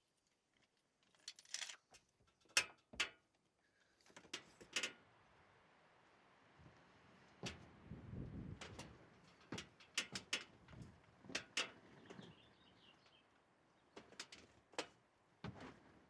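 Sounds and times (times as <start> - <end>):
sharp irregular clicks and knocks: 8.6 - 12.2.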